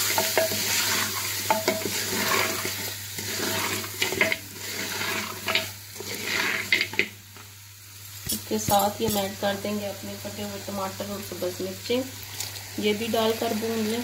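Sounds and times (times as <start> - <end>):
wooden spoon stirring: 0.0 - 7.1
beef sizzling in a pot: 0.0 - 14.0.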